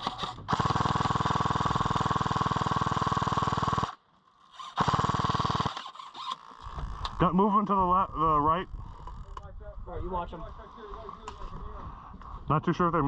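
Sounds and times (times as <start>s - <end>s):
airsoft machine gun firing: 0.0s - 4.0s, 4.6s - 6.3s.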